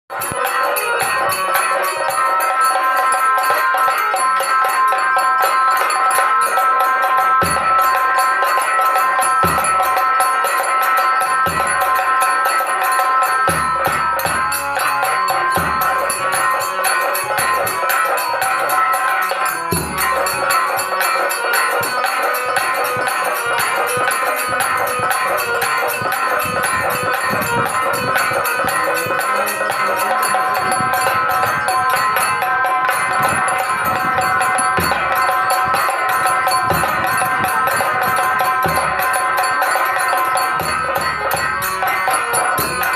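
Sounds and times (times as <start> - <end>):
jingling percussion: 0.0 - 42.9
sustained instrumental melody: 0.1 - 42.9
deep drum strokes: 22.9 - 39.3.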